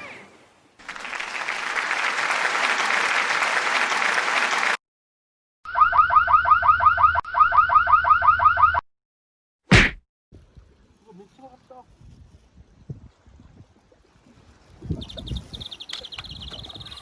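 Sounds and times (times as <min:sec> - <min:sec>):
applause-like cheering: 0:00.8 - 0:04.8.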